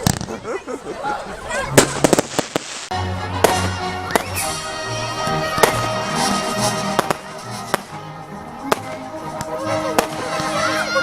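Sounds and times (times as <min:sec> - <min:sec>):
fireworks bangs: 0:00.0 - 0:00.4, 0:01.7 - 0:08.0, 0:08.6 - 0:10.6
music: 0:01.6 - 0:11.0.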